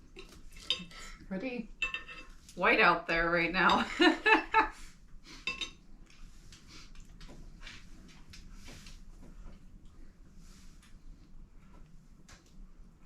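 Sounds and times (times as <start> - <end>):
cutlery and dishes clinking: 0.2 - 0.9, 1.8 - 2.3, 5.5 - 5.8.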